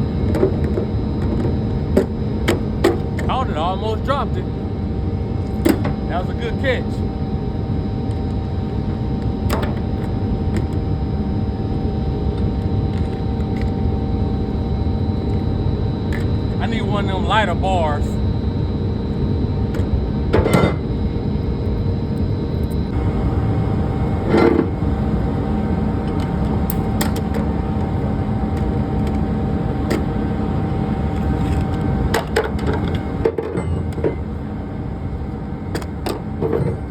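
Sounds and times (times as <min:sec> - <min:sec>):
engine idling rumble: 0:22.9 - 0:33.3.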